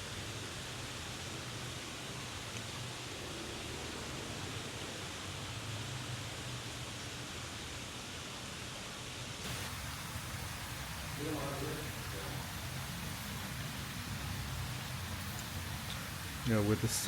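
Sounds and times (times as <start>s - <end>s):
steady rushing noise: 9.4s - 17.0s.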